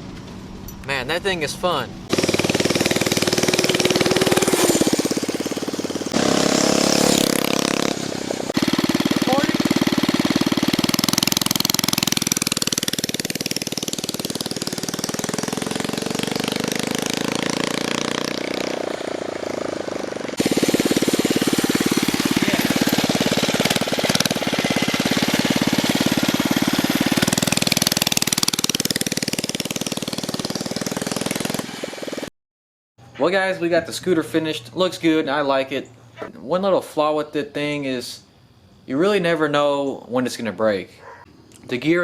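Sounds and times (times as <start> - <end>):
scooter engine running: 2.0 - 32.3.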